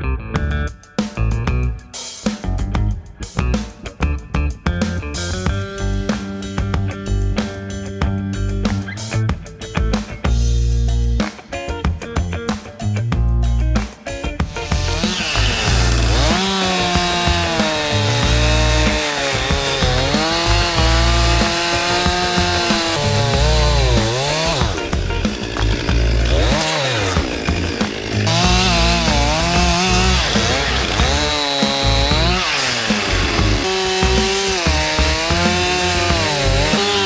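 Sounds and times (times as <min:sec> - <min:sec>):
chainsaw cutting branches: 0:14.5 - 0:37.0.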